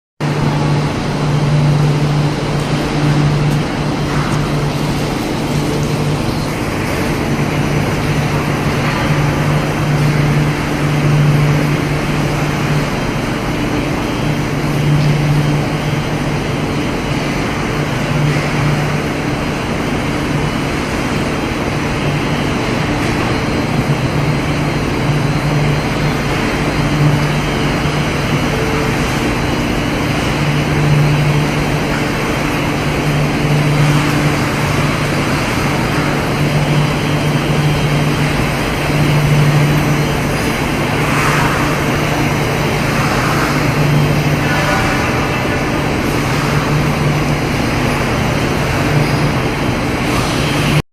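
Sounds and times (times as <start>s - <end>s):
low hum: 0.2s - 50.8s.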